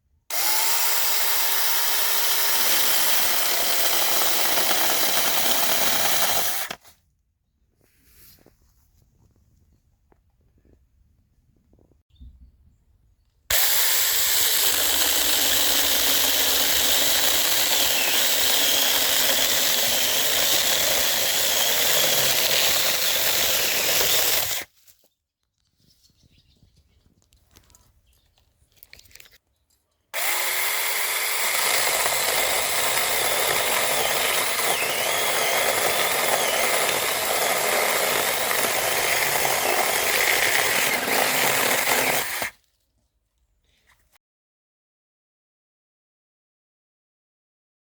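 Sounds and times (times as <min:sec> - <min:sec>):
mini chainsaw cutting wood: 0:00.3 - 0:06.9, 0:13.5 - 0:24.7, 0:30.2 - 0:42.6.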